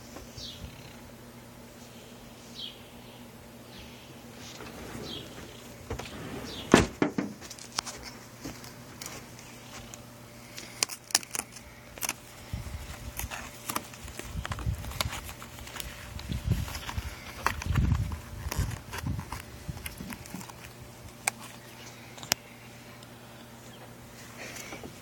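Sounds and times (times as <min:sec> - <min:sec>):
low rumbling: 0:03.8 - 0:07.2.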